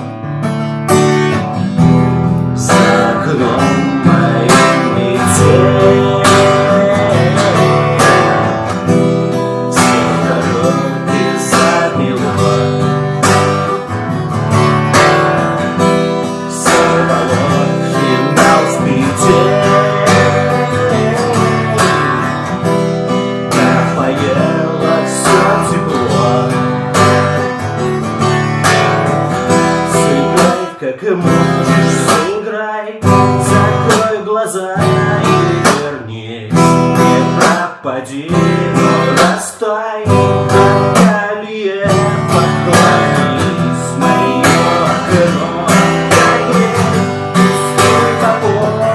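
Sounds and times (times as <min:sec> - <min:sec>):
acoustic guitar strumming: 0:00.0 - 0:48.9.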